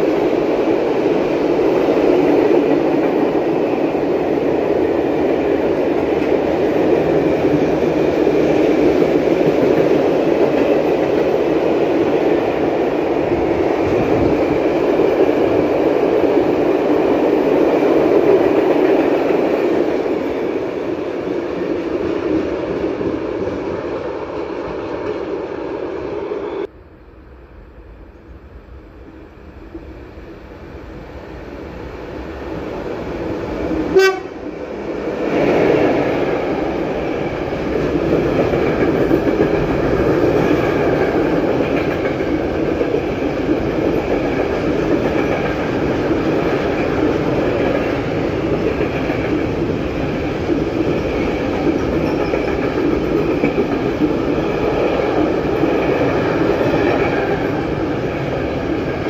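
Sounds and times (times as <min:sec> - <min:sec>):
train passing: 0:00.0 - 0:59.0
train horn toot: 0:33.9 - 0:34.4.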